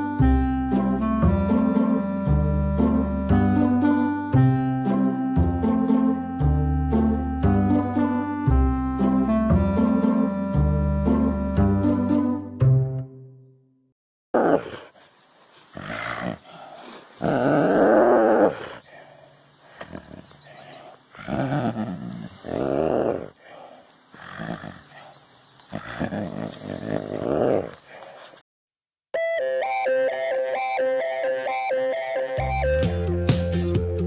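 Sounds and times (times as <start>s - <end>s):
animal growl-like calls: 14.4s - 28.4s.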